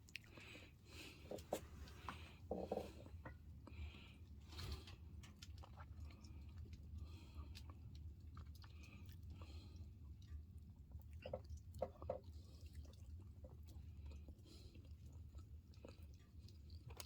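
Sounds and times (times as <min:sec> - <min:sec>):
person chewing: 0:00.0 - 0:02.9.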